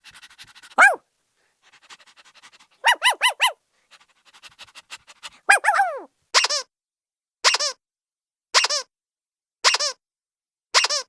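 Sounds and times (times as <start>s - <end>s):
small dog yipping: 0.6s - 1.0s, 1.7s - 3.6s, 4.9s - 6.6s.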